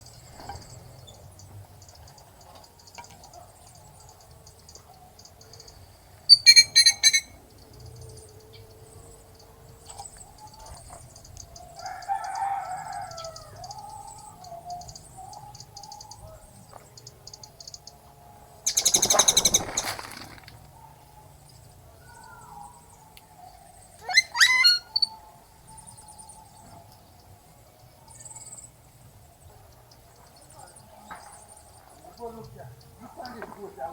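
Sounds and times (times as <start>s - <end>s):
loud bird calls: 0.0s - 27.4s
small birds chirping: 0.0s - 33.9s.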